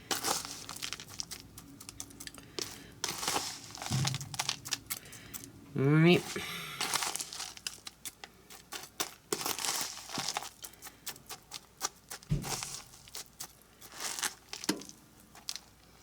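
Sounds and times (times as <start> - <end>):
crumbs crinkling: 0.0 - 5.5, 6.2 - 16.0
dull knock: 3.9 - 4.6, 12.3 - 12.6.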